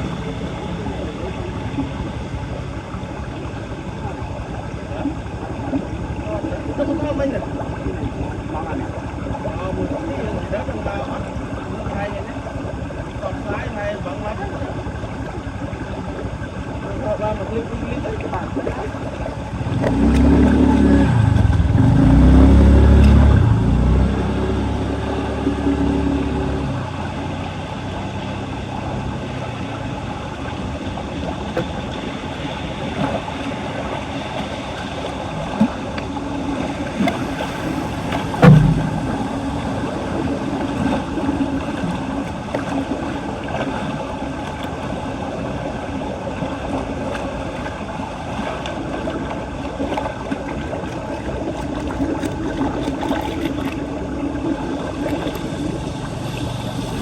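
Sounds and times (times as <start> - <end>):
water rushing down storm drain: 0.0 - 57.0
sharp knock: 37.0 - 39.9.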